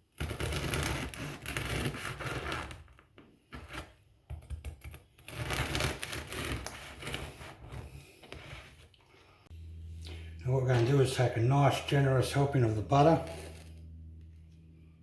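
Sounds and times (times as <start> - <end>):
knife sawing through bread: 0.2 - 2.9, 5.2 - 8.9.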